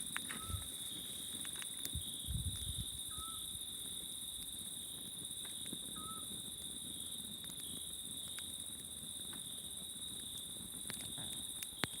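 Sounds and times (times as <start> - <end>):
campfire crackling: 0.0 - 12.0
crickets chirring: 0.0 - 12.0
high insect drone: 0.0 - 12.0
owl whistled call: 0.3 - 0.7, 3.1 - 3.4, 6.0 - 6.3.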